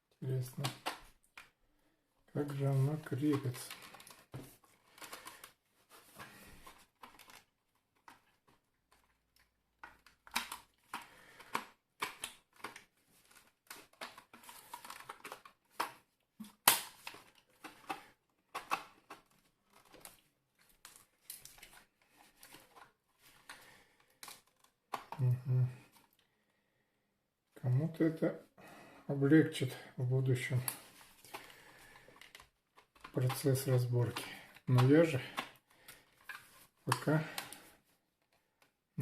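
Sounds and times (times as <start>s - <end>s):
plastic snap: 9.8s - 12.8s, 14.8s - 19.3s.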